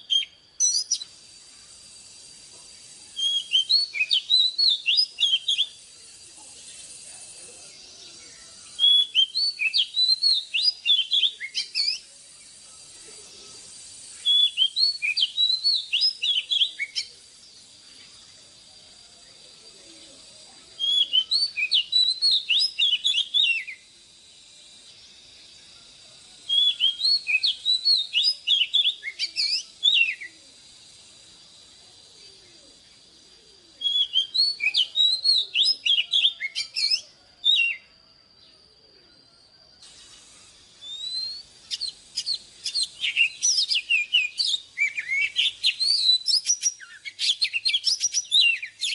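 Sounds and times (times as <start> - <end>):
bird singing whistled phrases: 0.0 - 1.2, 3.1 - 5.8, 8.0 - 12.1, 14.0 - 17.2, 20.2 - 23.9, 26.5 - 30.4, 33.7 - 37.9, 40.8 - 48.9.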